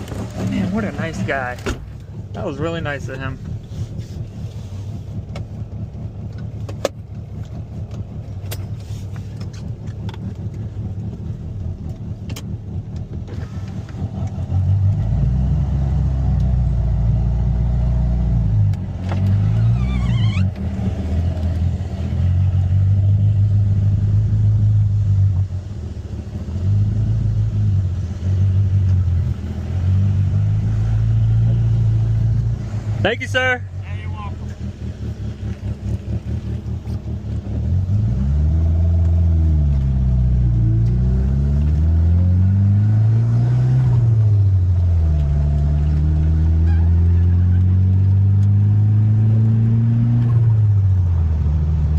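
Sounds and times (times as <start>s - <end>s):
car engine running: 0.0s - 51.9s
falling squeak: 19.6s - 20.6s.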